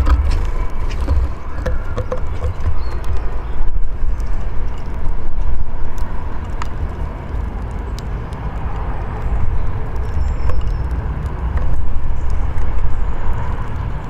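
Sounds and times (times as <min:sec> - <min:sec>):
loud low rumble: 0:00.0 - 0:04.1.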